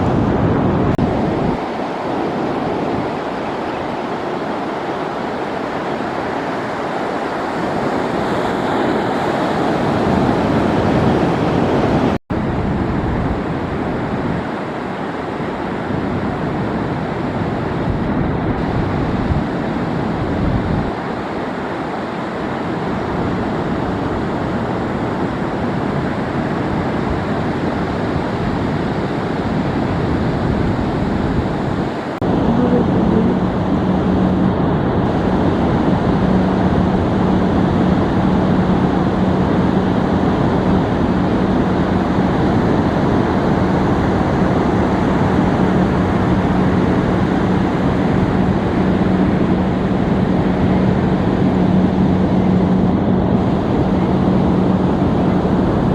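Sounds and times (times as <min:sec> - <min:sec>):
ocean surf washing in: 0:00.0 - 0:55.9
wind on microphone: 0:00.0 - 0:55.9
steady low hum: 0:29.8 - 0:55.9.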